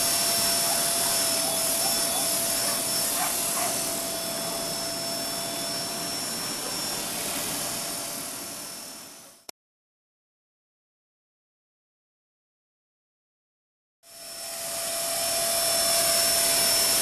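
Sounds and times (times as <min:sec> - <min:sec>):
rc helicopter rotor whirring: 0:00.0 - 0:09.5, 0:14.1 - 0:17.0.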